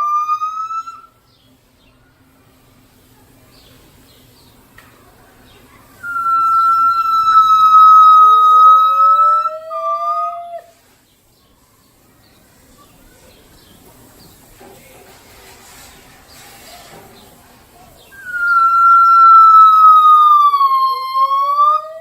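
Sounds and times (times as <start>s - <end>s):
gibbons hooting: 0.0s - 1.1s, 5.8s - 10.6s, 18.1s - 22.0s
lower rising gibbon call: 0.0s - 1.1s, 6.0s - 10.7s, 18.2s - 22.0s.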